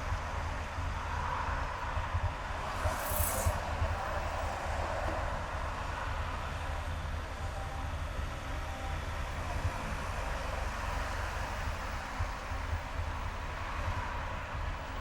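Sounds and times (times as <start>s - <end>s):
car engine and tyre rumble: 0.0s - 15.0s
brief high hiss: 2.6s - 4.6s.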